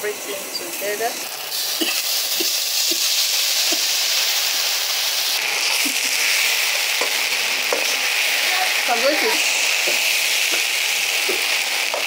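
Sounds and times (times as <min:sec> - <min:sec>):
food sizzling in hot oil: 0:00.0 - 0:12.0
wooden spoon stirring in pan: 0:05.7 - 0:12.0.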